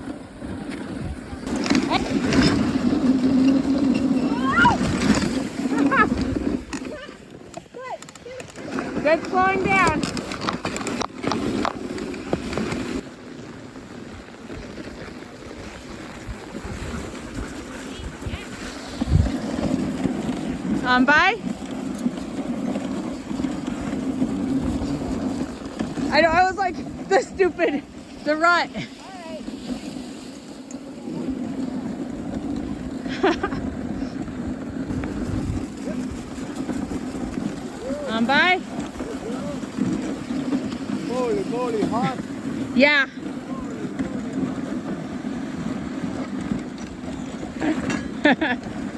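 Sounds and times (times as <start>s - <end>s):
sled gliding over snow: 0.0s - 48.9s
wind buffeting microphone: 15.4s - 21.4s, 32.2s - 43.9s.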